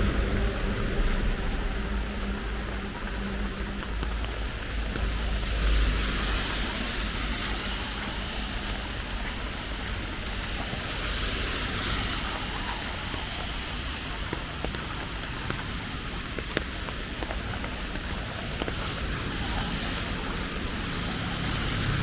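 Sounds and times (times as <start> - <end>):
low rumble: 0.0 - 16.4
steady rain falling: 0.0 - 22.0.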